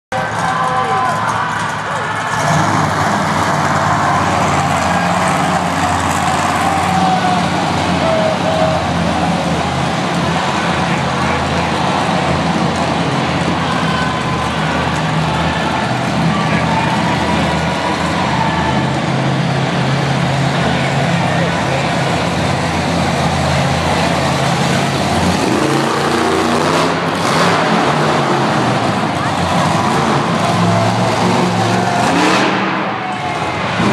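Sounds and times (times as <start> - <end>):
monster truck engine running: 0.1 - 33.9.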